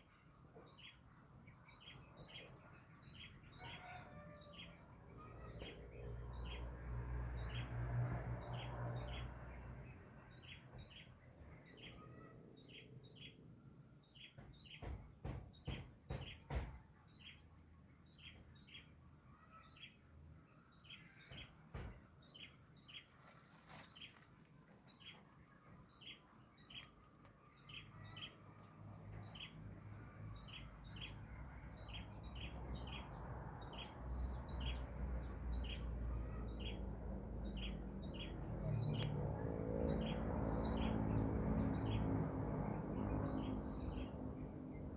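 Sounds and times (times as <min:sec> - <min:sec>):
knocks: 0:14.3 - 0:16.8, 0:21.2 - 0:22.1.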